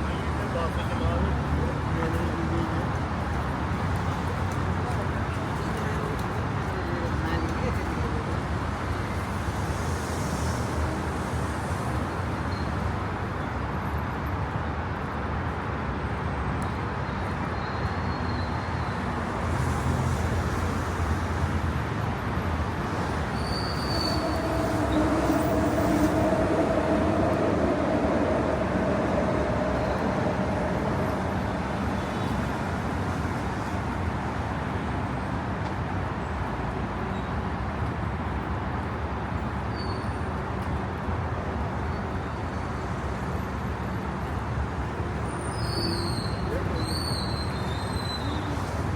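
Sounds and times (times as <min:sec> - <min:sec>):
traffic rumble: 0:00.0 - 0:48.9
passing vehicle humming: 0:22.6 - 0:33.5.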